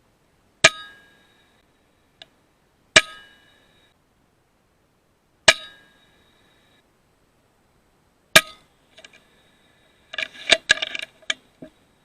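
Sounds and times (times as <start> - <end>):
metallic ring: 0.6 - 1.7, 3.0 - 4.0, 5.5 - 6.8, 8.4 - 8.7.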